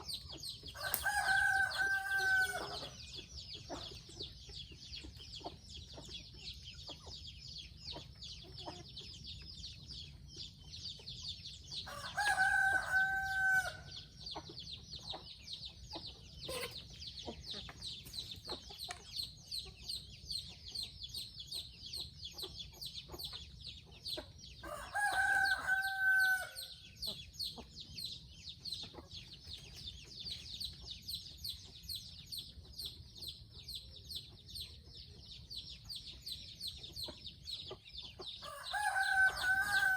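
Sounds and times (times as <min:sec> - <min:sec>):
rooster crowing: 0:00.8 - 0:02.9, 0:11.9 - 0:13.9, 0:24.6 - 0:26.7, 0:38.4 - 0:39.9.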